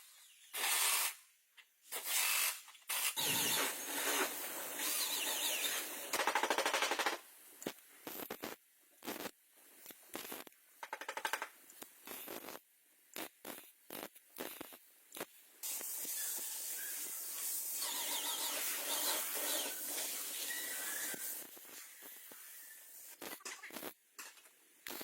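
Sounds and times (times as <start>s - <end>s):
compressed air hissing: 3.2s - 6.1s, 15.6s - 23.3s
tools tapping and clicking: 5.6s - 9.2s, 9.8s - 15.3s, 23.2s - 25.0s.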